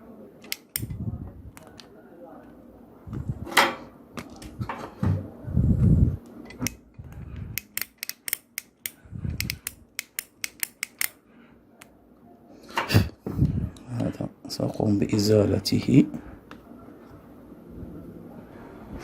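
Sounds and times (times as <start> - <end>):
tools clicking and tapping: 6.5 - 11.2.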